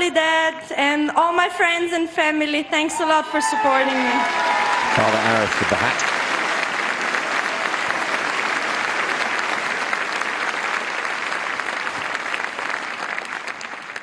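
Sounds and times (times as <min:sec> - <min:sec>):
stadium crowd applauding: 0:03.5 - 0:14.0.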